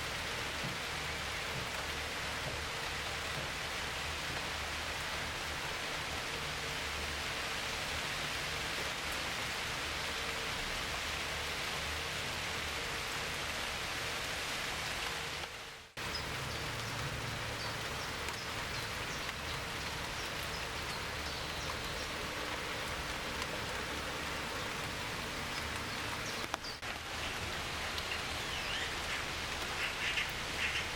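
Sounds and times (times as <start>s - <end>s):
heavy rain falling: 0.0s - 30.9s
faint birds chirping: 16.0s - 27.4s.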